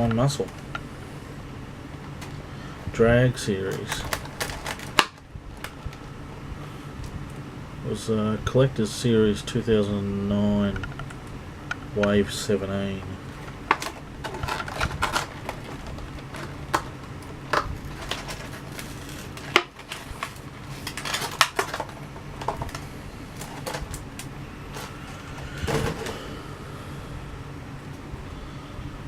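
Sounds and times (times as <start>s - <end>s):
packaging clicks and knocks: 3.7s - 5.8s, 13.4s - 22.8s, 23.4s - 26.2s
scraping rustle: 13.3s - 24.0s.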